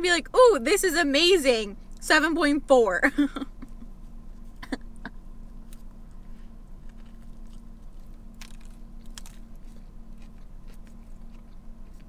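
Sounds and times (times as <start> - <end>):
steady low hum: 0.0 - 12.0
person chewing: 5.6 - 12.0.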